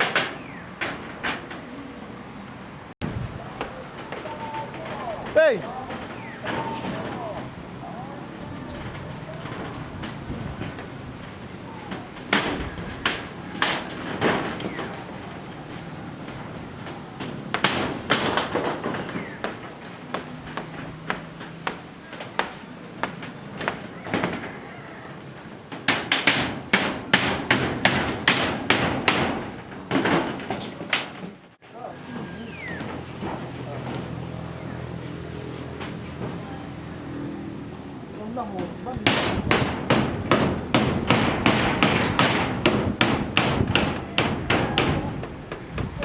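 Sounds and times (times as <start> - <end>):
hammer strikes: 25.9 - 30.4, 39.0 - 45.4.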